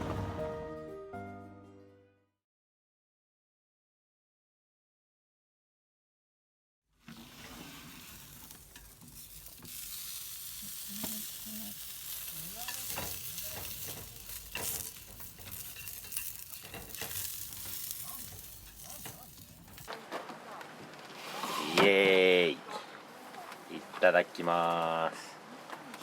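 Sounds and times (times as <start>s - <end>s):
food sizzling in a pan: 7.1s - 19.9s.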